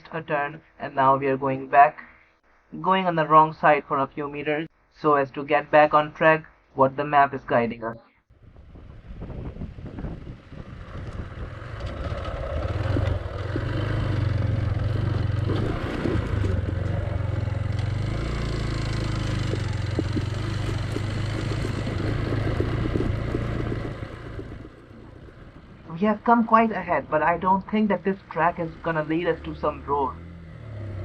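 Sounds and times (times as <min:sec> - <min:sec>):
wind and road noise: 0:08.3 - 0:31.0
motorcycle engine running: 0:08.6 - 0:31.0
small rattles: 0:11.1 - 0:25.9.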